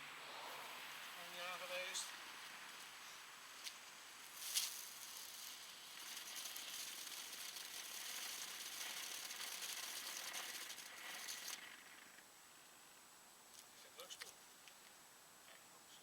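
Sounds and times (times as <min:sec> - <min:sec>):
firework fountain hissing and crackling: 0:00.0 - 0:12.2.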